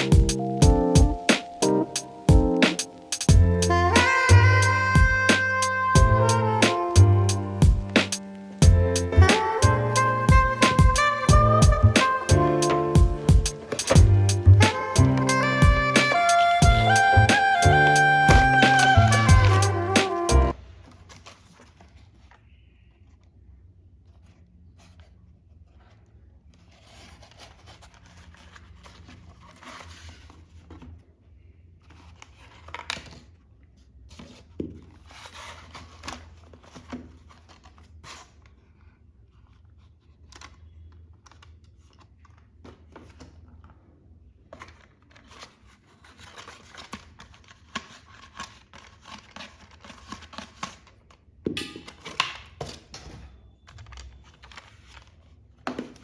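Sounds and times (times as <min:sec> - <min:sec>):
cardboard and plastic crinkling: 0:03.7 - 0:22.6, 0:44.5 - 0:51.3, 0:51.9 - 0:56.0.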